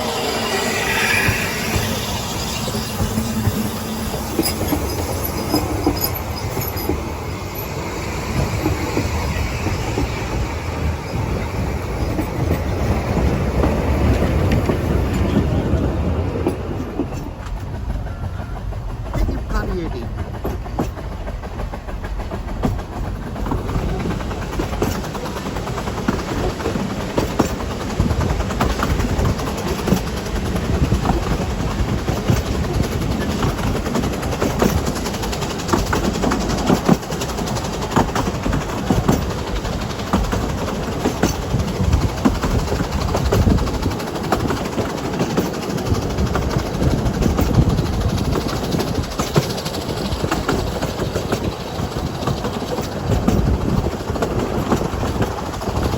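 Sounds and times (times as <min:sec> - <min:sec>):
train wheels rumbling on track: 0:00.0 - 0:55.9.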